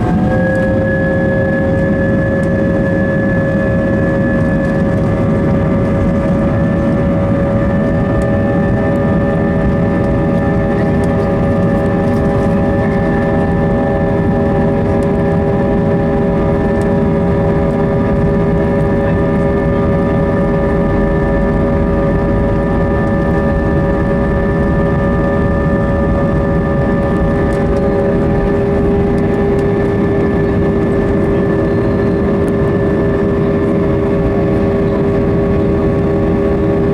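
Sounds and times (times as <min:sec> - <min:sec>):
jet engines rumbling and whining: 0:00.0 - 0:36.9.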